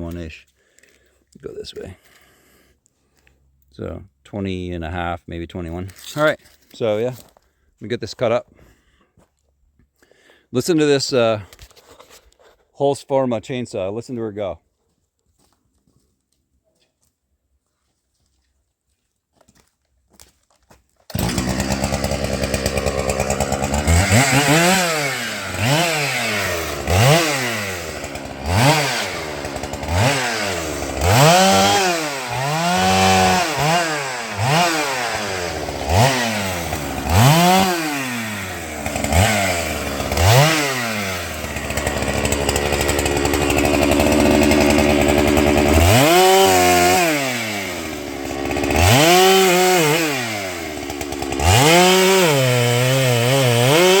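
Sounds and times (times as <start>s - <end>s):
chainsaw revving: 21.1s - 54.0s.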